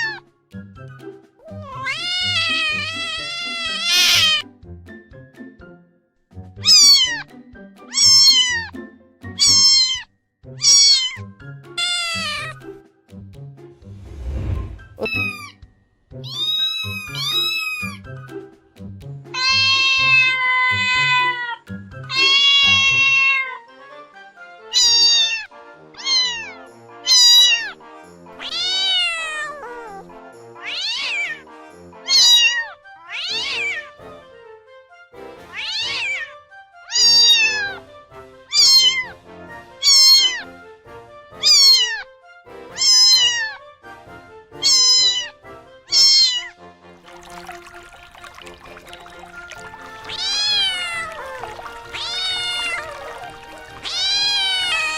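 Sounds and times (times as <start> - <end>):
cat meowing: 0.0 - 0.2, 1.4 - 4.4, 6.6 - 7.3, 7.9 - 8.7, 9.4 - 12.6, 15.0 - 15.6, 16.2 - 18.0, 19.3 - 23.6, 24.7 - 27.8, 28.4 - 30.0, 30.6 - 31.4, 32.1 - 33.9, 35.5 - 36.3, 36.9 - 37.8, 38.5 - 39.1, 39.8 - 40.5, 41.4 - 42.0, 42.7 - 43.6, 44.6 - 46.5, 50.0 - 54.9.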